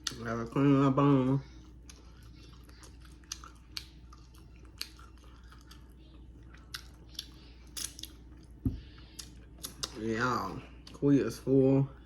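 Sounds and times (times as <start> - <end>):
chewing and mouth smacks: 0.0 - 0.3, 1.5 - 10.0.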